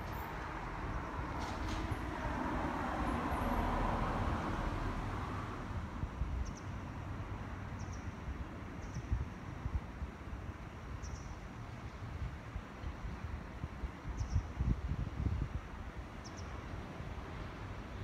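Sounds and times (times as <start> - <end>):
train cabin rumble and hiss: 0.0 - 3.6.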